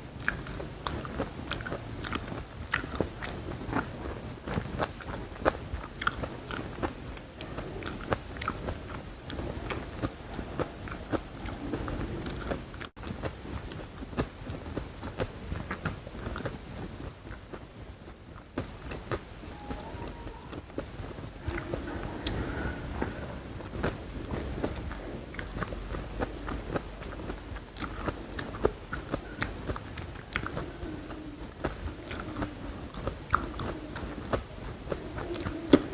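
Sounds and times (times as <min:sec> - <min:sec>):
crunchy bites and chewing: 0:00.1 - 0:19.3, 0:20.5 - 0:35.9.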